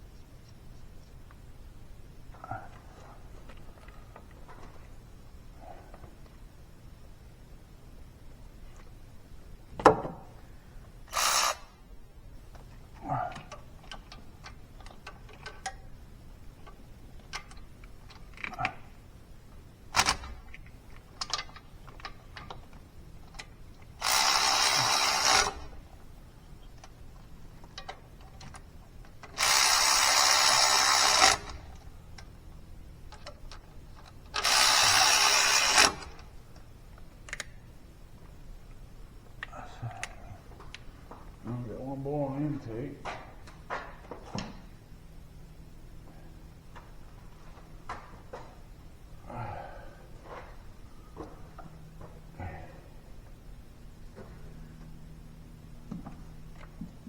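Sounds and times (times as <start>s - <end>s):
handheld power tool running: 11.1s - 11.7s, 24.0s - 25.7s, 29.4s - 31.6s, 34.4s - 36.1s
tools clicking and knocking: 13.3s - 15.8s, 19.9s - 25.7s.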